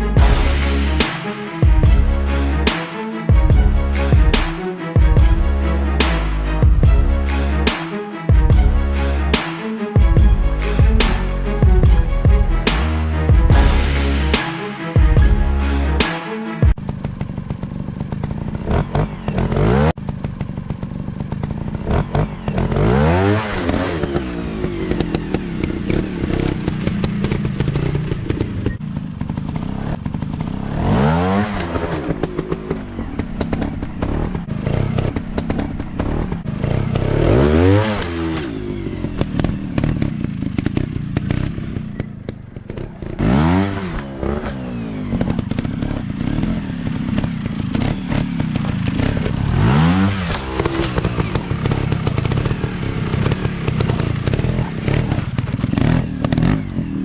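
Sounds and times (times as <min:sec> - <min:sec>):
dirt bike engine revving: 0:15.2 - 0:57.0.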